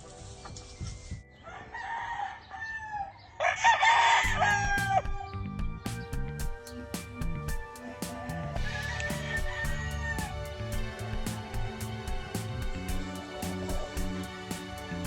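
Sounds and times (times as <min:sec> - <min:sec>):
rooster crowing: 0:01.4 - 0:05.2, 0:07.9 - 0:10.6.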